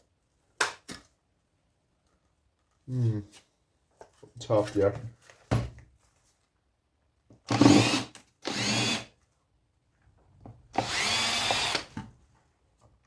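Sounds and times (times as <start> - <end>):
cordless drill running: 7.5 - 9.1, 10.7 - 11.9.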